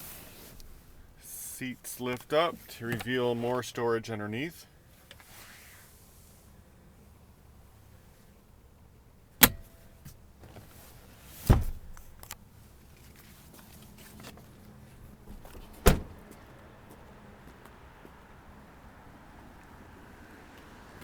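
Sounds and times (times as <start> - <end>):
seat cushions clunking: 9.4 - 12.2, 15.2 - 16.4.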